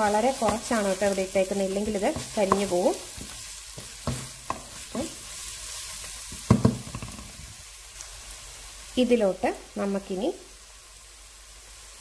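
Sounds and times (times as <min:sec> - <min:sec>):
wooden spatula scraping pan: 0:00.0 - 0:07.4
onions sizzling in oil: 0:00.0 - 0:12.0
spatula knocks: 0:06.4 - 0:07.2.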